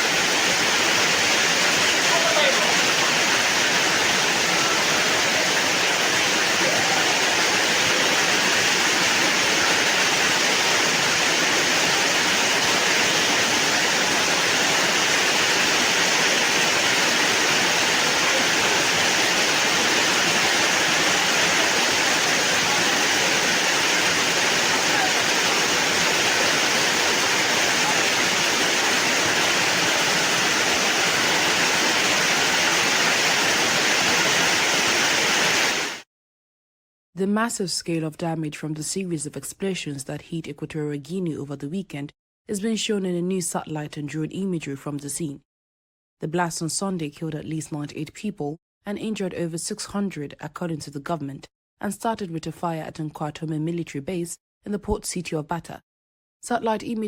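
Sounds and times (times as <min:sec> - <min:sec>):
floodwater rushing: 0:00.0 - 0:36.0.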